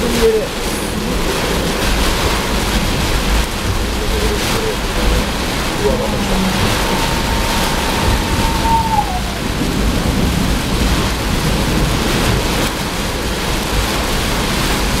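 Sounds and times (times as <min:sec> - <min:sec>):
heavy rain pouring: 0:00.0 - 0:15.0
thunder rumbling: 0:00.0 - 0:15.0
high tone sliding downward: 0:05.5 - 0:10.1.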